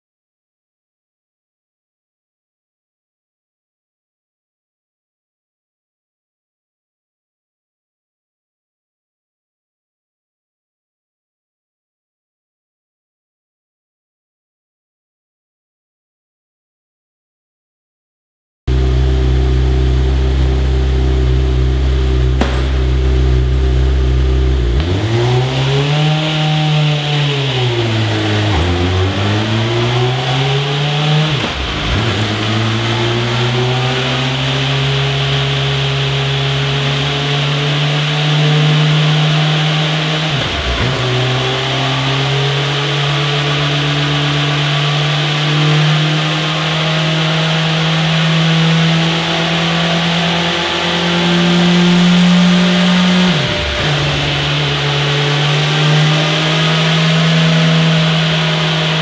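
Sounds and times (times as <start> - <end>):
motorcycle engine revving: 18.7 - 59.0.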